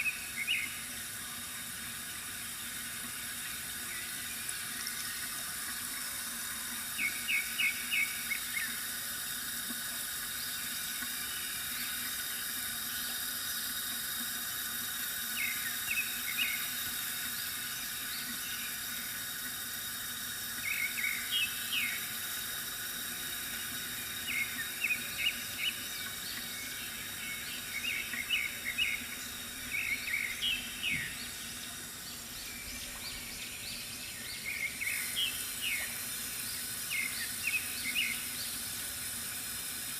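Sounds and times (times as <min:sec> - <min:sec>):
water trickling from fountain: 0:00.0 - 0:39.9
small bird chirping: 0:20.6 - 0:22.1, 0:24.2 - 0:38.6.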